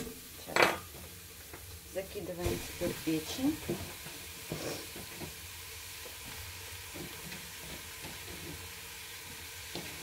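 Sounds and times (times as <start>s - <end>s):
meat sizzling: 0.0s - 10.0s.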